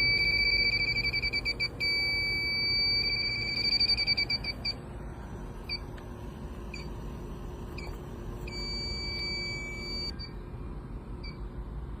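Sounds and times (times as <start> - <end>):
electronic beeper beeping: 0.0 - 4.8, 8.5 - 10.4
steady low hum: 0.0 - 12.0.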